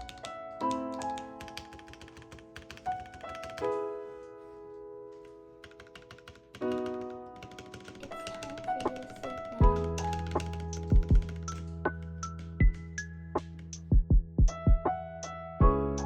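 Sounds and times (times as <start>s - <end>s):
mechanical keyboard typing: 0.0s - 3.8s, 5.6s - 12.4s
soft background music: 0.0s - 16.0s.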